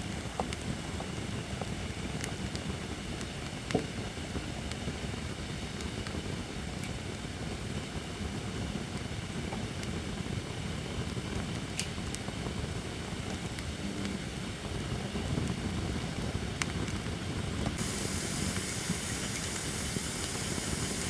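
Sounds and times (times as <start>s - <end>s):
campfire crackling and popping: 17.8s - 21.0s.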